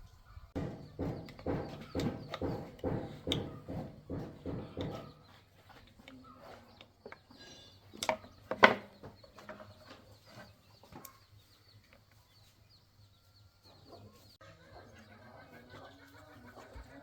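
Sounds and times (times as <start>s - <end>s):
loud bird calls: 0.0s - 12.5s.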